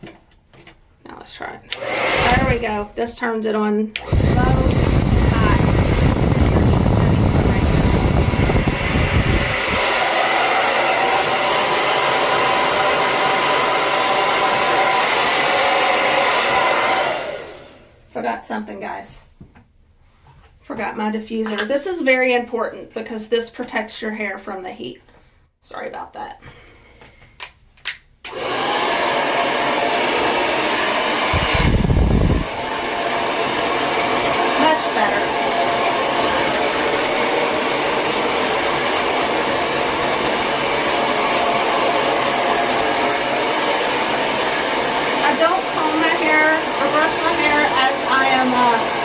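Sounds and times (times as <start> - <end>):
hair dryer blowing air: 1.7 - 18.1, 28.3 - 49.0
deep rumble: 4.1 - 9.8.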